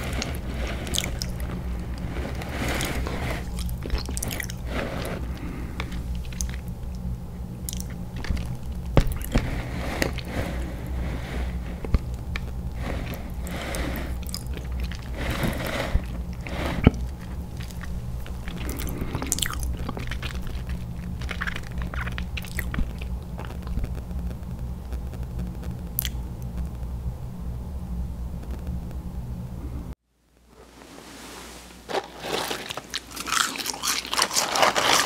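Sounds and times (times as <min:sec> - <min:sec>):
chewing and crunching food: 0:00.0 - 0:24.0, 0:25.9 - 0:26.2, 0:31.9 - 0:35.0
steady low hum: 0:00.0 - 0:35.0.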